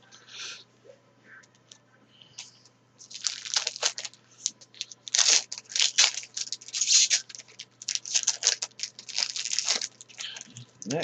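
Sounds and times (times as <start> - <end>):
card pack wrapper tearing and crinkling: 3.0 - 10.9.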